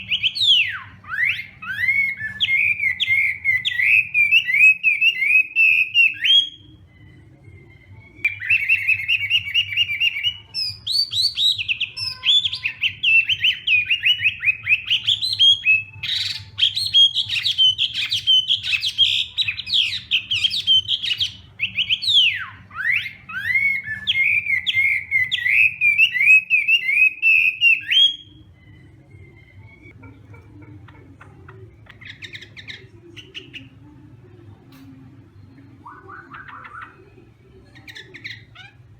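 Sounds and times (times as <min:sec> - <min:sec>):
faint bird chirps: 0:00.0 - 0:30.0.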